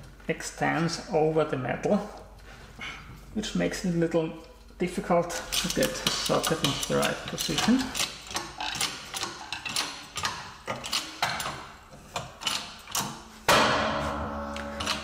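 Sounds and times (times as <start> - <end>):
steel sockets clinking: 5.3 - 13.2
ringing metallic clang: 13.5 - 15.0.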